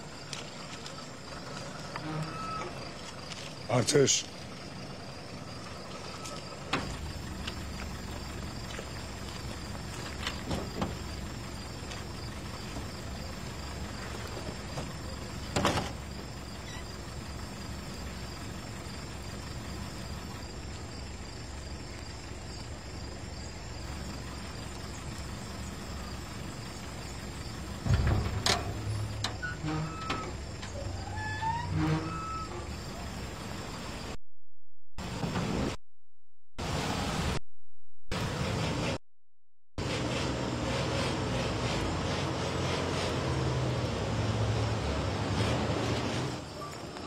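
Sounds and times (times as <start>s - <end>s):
crickets chirping: 0.0s - 34.2s, 43.3s - 47.0s
old car engine running: 2.7s - 31.0s
heavy thump: 27.8s - 28.9s.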